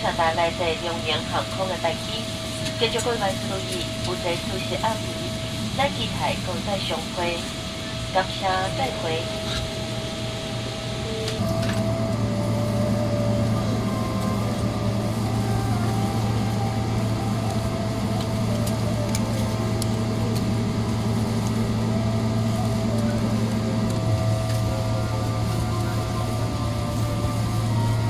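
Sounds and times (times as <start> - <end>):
aircraft cabin drone: 0.0 - 28.0.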